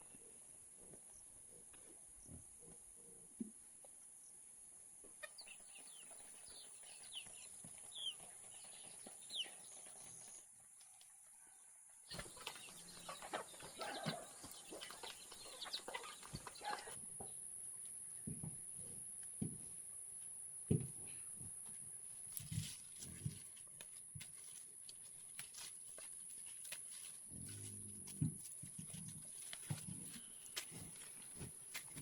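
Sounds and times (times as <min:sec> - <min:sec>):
chickens chirping: 0:05.2 - 0:10.4, 0:12.1 - 0:17.0
chickens clucking: 0:05.2 - 0:10.4, 0:12.1 - 0:17.0.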